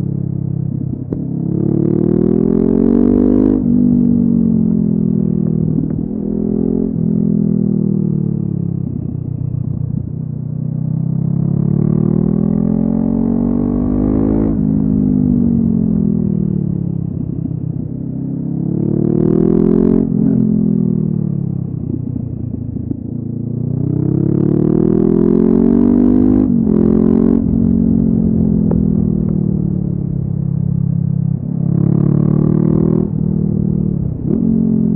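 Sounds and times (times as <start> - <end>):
motorcycle engine revving: 10.9 - 34.9.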